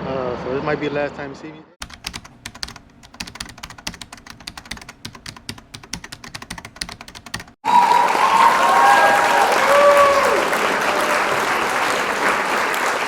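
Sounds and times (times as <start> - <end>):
keyboard typing clicks: 1.8 - 7.6
loud applause: 7.6 - 13.0.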